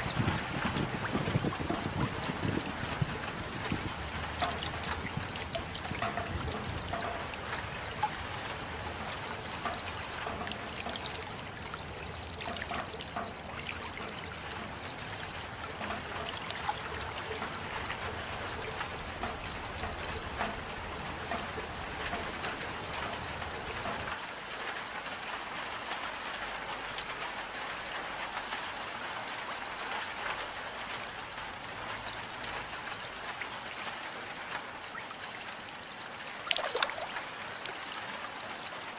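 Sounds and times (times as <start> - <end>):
rain drops pattering: 0.0 - 38.9
running water trickle: 0.0 - 38.9.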